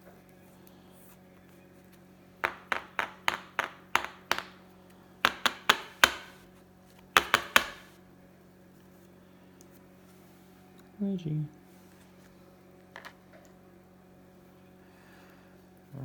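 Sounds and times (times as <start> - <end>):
sharp taps or claps: 2.4 - 4.6, 5.2 - 6.4, 7.2 - 7.9.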